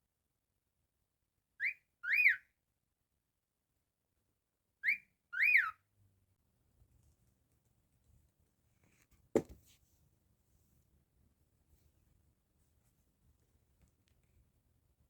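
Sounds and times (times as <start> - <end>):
cockatiel whistling: 1.6 - 2.4, 4.8 - 5.8.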